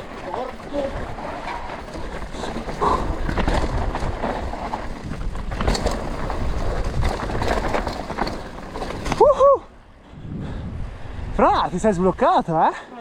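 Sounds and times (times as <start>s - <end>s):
tyres rolling over dirt and stones: 0.0s - 10.1s
bike rattling over bumps: 0.0s - 12.3s.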